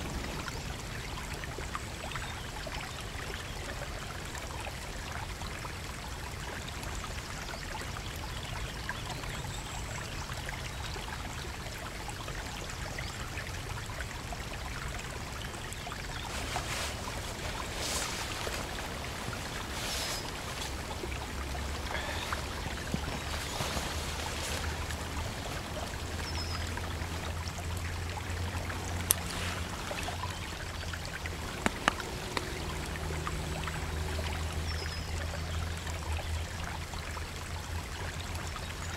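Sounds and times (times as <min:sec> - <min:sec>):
stream rushing: 0:00.0 - 0:03.4, 0:10.2 - 0:38.9
rustling: 0:16.2 - 0:27.3.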